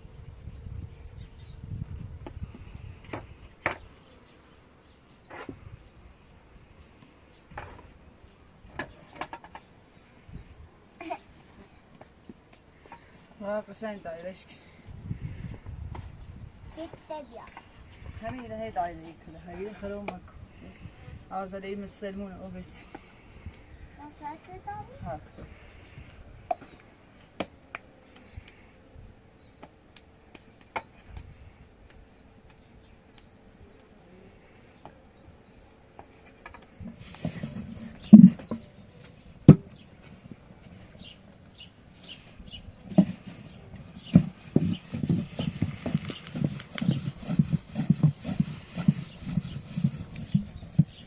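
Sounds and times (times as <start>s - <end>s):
hands patting bread dough: 42.9s - 51.0s.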